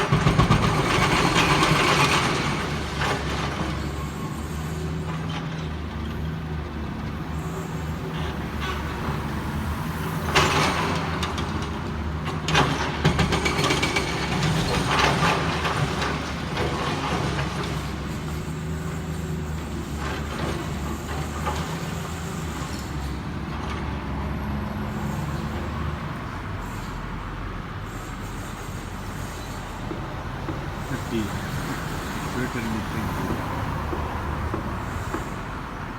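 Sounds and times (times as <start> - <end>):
excavator diesel engine running: 9.9 - 35.9.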